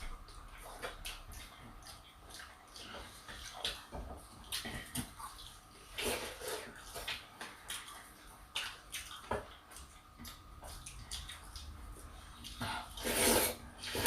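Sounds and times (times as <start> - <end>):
wet eating sounds: 0.0 - 14.0.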